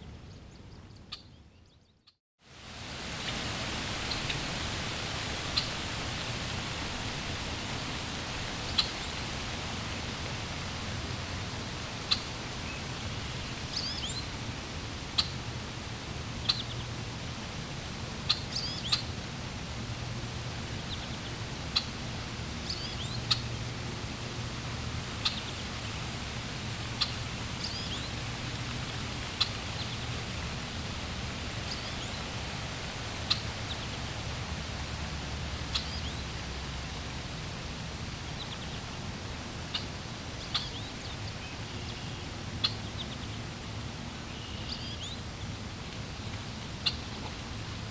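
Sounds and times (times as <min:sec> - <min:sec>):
flowing water: 0:02.4 - 0:47.9
small birds chirping: 0:35.7 - 0:36.3, 0:39.7 - 0:43.4.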